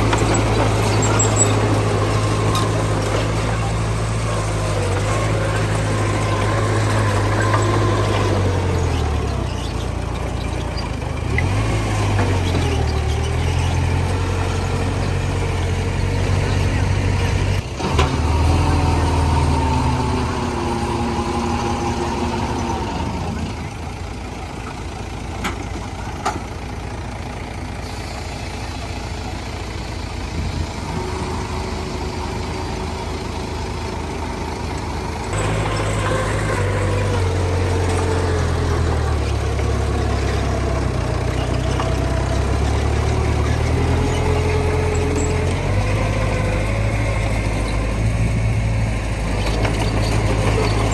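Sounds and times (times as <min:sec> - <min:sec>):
heavy diesel engines working: 0:00.0 - 0:50.9.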